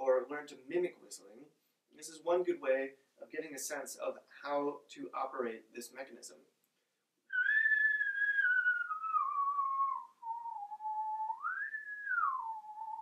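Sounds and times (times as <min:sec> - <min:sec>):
man whistling sliding tone: 0:07.3 - 0:13.0.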